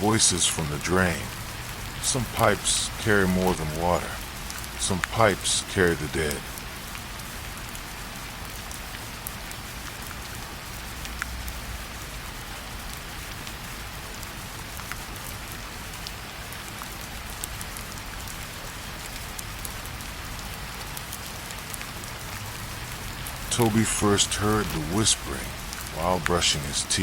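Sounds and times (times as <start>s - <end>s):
steady rain hiss: 0.0s - 27.0s.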